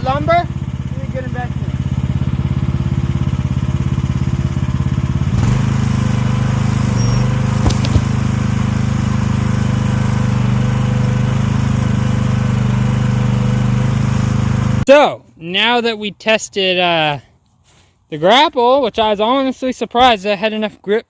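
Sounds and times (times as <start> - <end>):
excavator engine running: 0.0 - 14.9
sharp knocks: 7.6 - 8.2.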